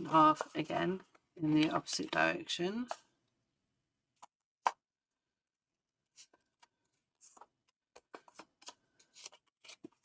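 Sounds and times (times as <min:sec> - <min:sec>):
paper being folded and creased: 0:06.1 - 0:10.0
paper rustling: 0:06.1 - 0:10.0.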